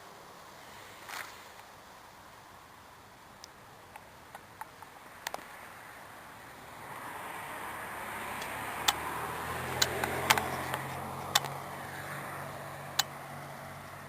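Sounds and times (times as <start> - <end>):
sharp clicks: 8.4 - 9.1, 9.7 - 11.6.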